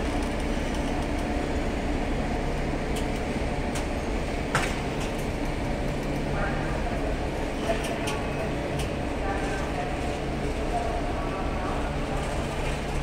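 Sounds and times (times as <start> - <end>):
train mechanical hum: 0.0 - 13.0.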